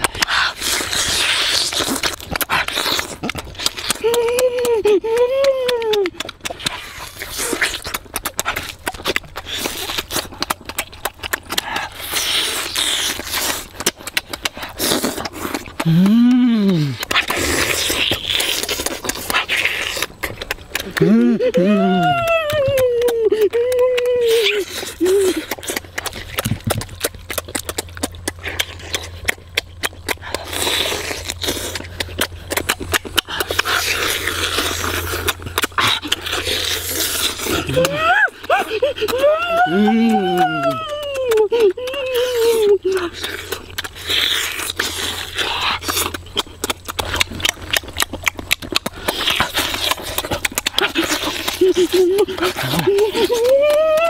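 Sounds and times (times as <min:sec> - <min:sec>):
meat tearing from bone: 0:00.0 - 0:54.0
person chewing chicken: 0:00.0 - 0:54.0
wet lip smacks: 0:00.0 - 0:54.0.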